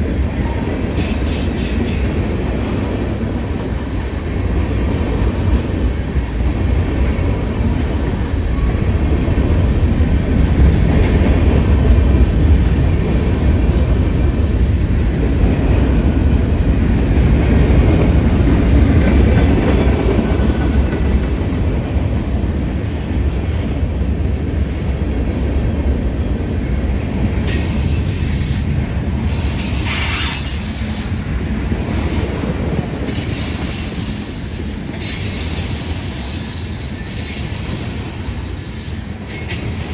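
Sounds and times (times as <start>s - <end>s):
train wheels rumbling on rail: 0.0s - 39.9s
high-pitched wheel squeal: 34.9s - 39.9s.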